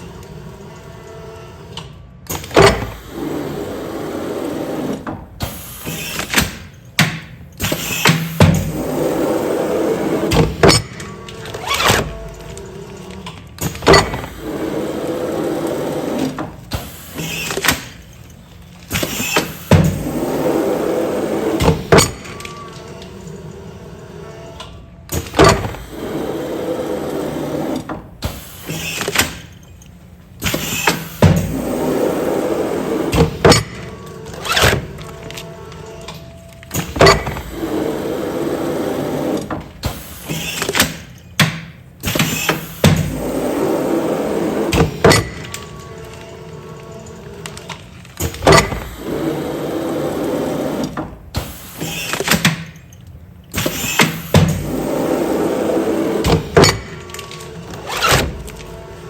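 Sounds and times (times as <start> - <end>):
machine running noise: 7.3 - 41.2, 41.8 - 59.0
sealing machine clunks: 10.2 - 14.7, 44.2 - 49.5.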